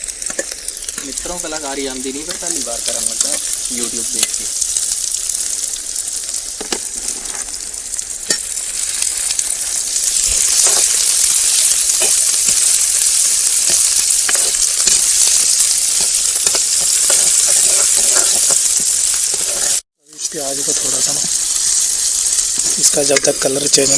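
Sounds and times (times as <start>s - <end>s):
onions sizzling in oil: 0.0s - 23.9s.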